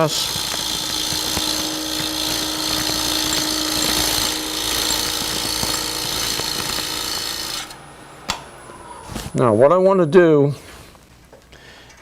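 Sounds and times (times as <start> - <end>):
gouge cutting wood on lathe: 0.0 - 7.8
lathe hum: 0.0 - 8.6.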